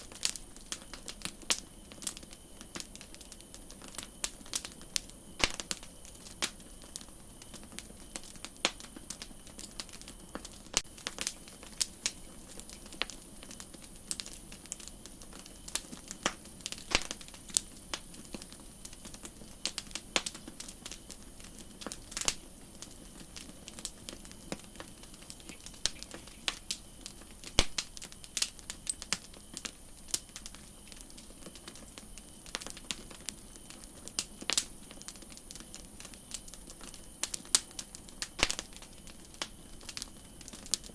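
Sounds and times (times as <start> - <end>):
campfire crackling: 0.0 - 40.9
faint steady hiss: 0.0 - 40.9.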